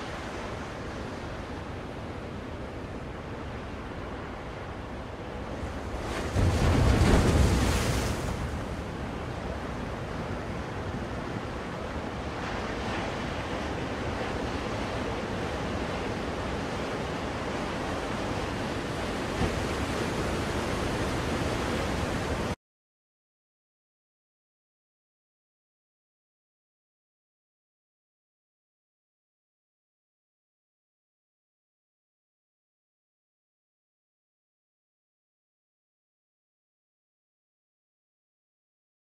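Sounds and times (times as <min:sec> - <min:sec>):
ocean waves washing in: 0:00.0 - 0:22.6.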